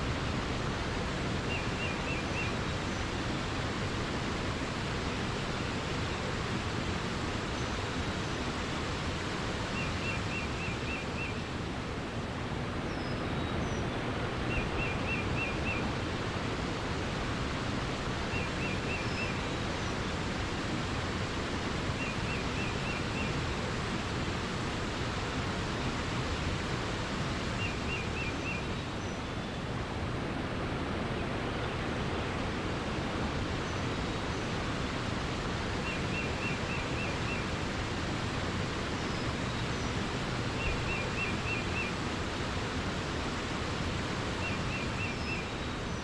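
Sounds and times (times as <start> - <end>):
rushing water: 0.0 - 46.0.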